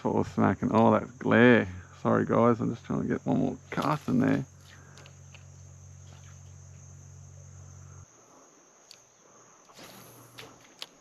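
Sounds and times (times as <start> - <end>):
faint low hum: 0.0 - 11.0
insects chirring: 0.0 - 11.0.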